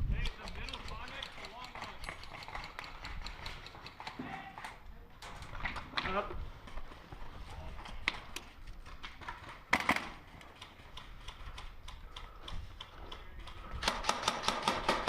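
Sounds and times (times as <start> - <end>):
airsoft rifle shots: 13.8 - 15.0.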